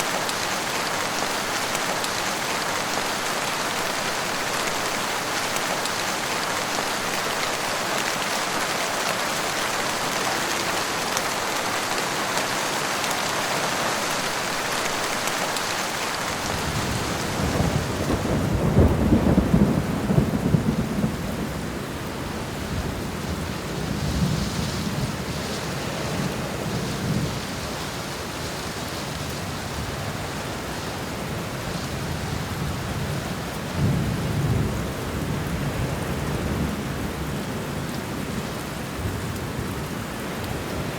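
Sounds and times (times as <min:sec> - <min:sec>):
heavy rain: 0:00.0 - 0:40.9
thunder rumbling: 0:16.1 - 0:21.7.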